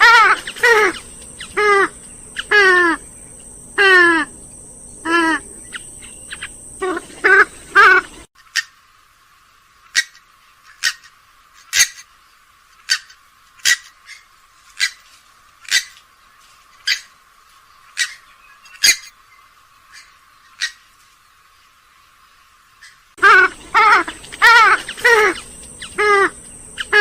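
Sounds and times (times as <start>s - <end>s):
swamphen sharp calls: 0.0s - 8.8s, 22.8s - 27.0s.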